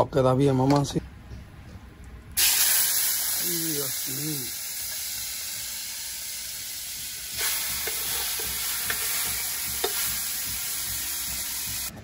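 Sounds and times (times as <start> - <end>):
meat sizzling in hot fat: 2.4 - 11.9.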